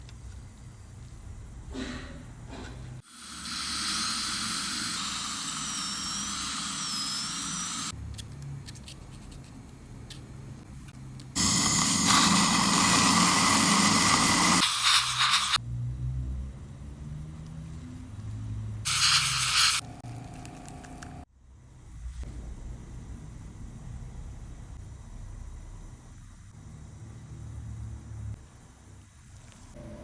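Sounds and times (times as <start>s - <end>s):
dental equipment hissing: 3.0s - 8.0s, 11.4s - 15.6s, 18.9s - 19.8s.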